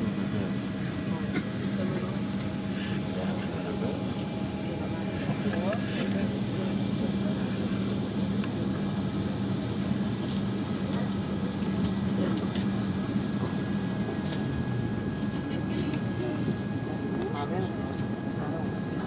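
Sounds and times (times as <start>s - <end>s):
airliner cabin hum: 0.0s - 19.0s.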